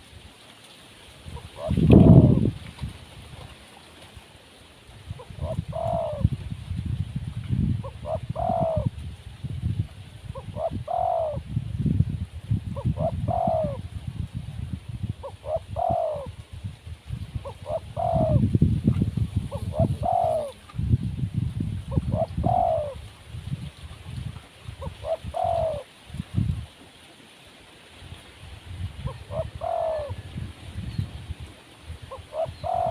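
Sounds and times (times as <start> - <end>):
dove cooing: 1.3 - 2.6, 5.1 - 6.3, 7.8 - 9.0, 10.3 - 11.5, 12.8 - 13.8, 15.2 - 16.4, 17.4 - 18.5, 19.4 - 20.7, 21.9 - 23.0, 24.8 - 25.9, 29.0 - 30.5, 32.1 - 32.9.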